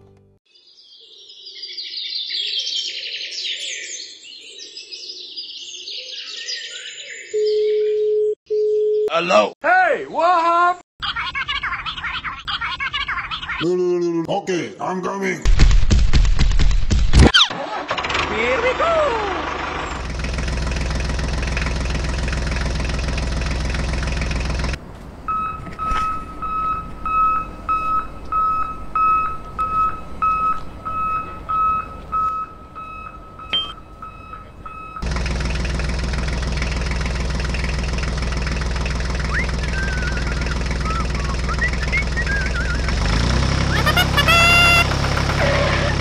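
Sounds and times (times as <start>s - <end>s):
tractor engine running: 17.5s - 46.0s
high electronic beeping: 25.3s - 35.0s.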